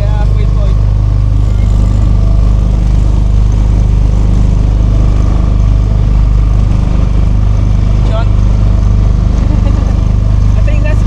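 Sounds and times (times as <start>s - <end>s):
motorboat engine drone: 0.0s - 11.0s.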